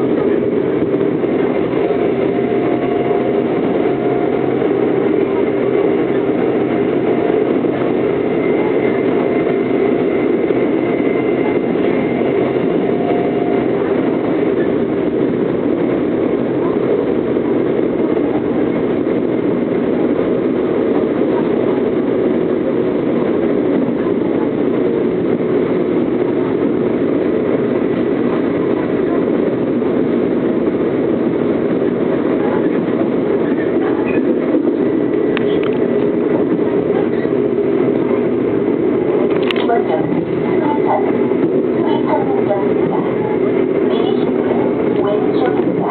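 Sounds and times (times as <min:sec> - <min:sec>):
faint steady tones: 0:00.0 - 0:29.3
electric train wheels rumbling: 0:00.0 - 0:45.9.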